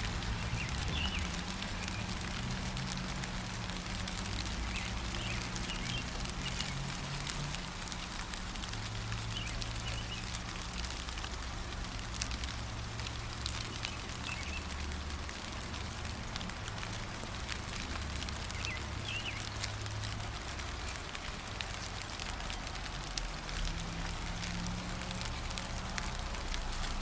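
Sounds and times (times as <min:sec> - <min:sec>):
songbird chirping: 0:00.0 - 0:02.9, 0:04.4 - 0:07.5, 0:08.6 - 0:10.9, 0:13.4 - 0:14.9, 0:17.8 - 0:21.1
gentle rain: 0:00.0 - 0:27.0.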